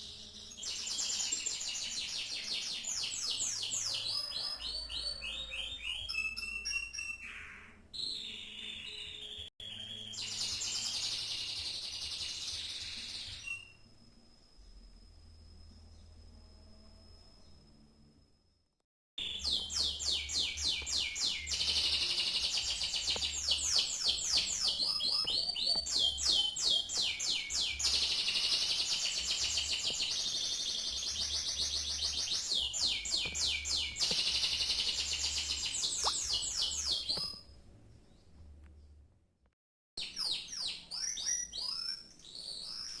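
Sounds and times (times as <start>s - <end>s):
canary singing trills: 19.2s - 37.4s.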